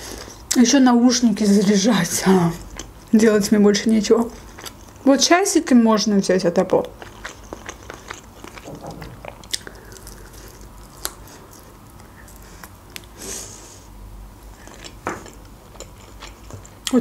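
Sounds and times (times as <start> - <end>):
biting and chewing chicken wing: 6.8 - 13.2
wet mouth sounds: 6.9 - 13.2.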